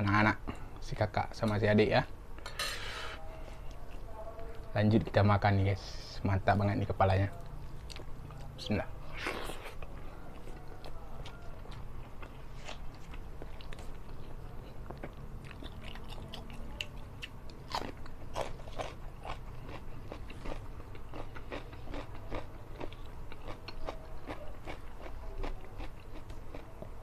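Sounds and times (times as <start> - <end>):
mouth chewing: 7.4 - 27.0
cucumber crunching: 9.0 - 26.8.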